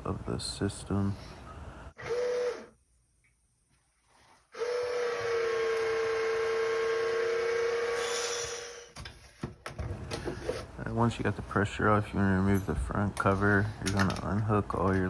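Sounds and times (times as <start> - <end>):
valve whistling: 4.5 - 9.0.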